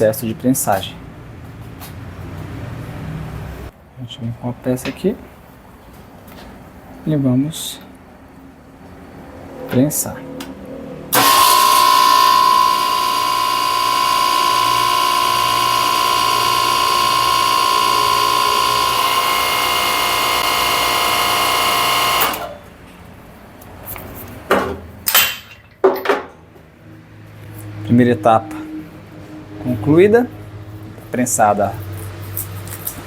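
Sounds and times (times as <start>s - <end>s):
crimping machine whine: 11.1s - 22.7s.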